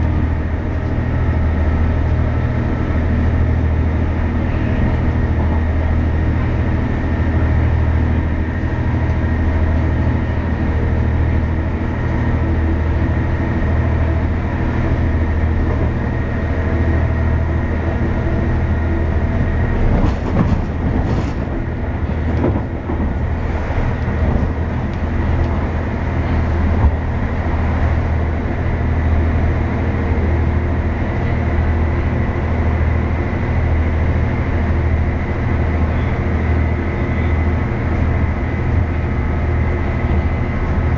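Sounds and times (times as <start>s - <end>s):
train low rumble: 0.0s - 40.9s.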